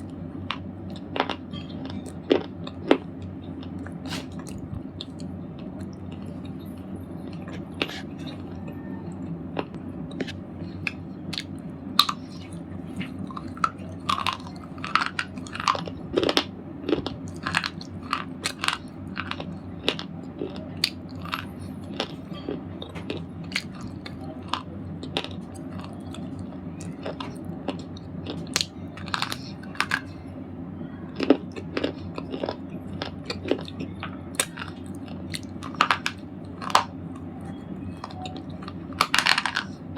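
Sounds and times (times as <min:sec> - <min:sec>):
slate balls crunching: 0:09.6 - 0:30.2, 0:31.2 - 0:37.0, 0:38.0 - 0:39.9.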